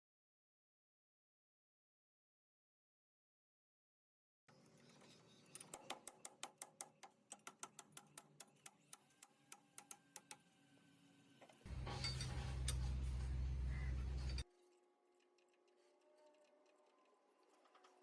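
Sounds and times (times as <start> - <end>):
sharp evenly spaced taps: 5.7 - 10.4.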